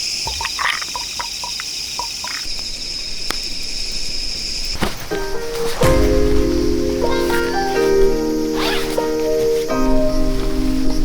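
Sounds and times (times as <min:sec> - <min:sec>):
crickets chirping: 0:00.0 - 0:11.0
music: 0:04.8 - 0:11.0.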